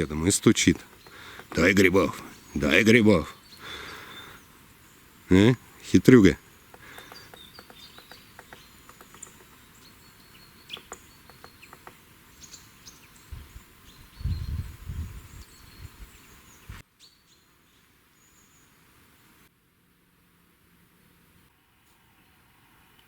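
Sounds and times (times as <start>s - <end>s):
small birds chirping: 0.0s - 18.8s
sharp taps: 0.8s - 1.7s, 6.7s - 9.6s, 10.7s - 12.0s.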